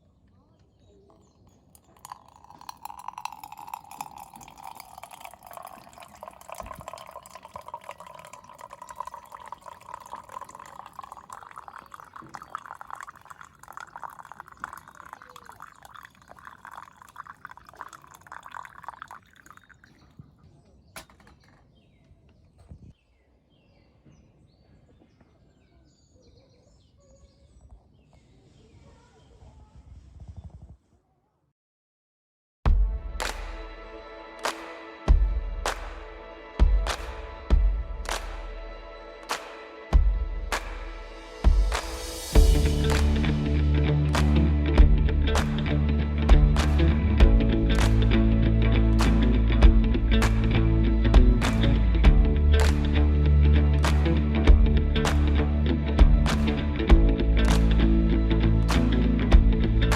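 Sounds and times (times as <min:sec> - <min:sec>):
water pouring into vessel: 0:01.6 - 0:20.1.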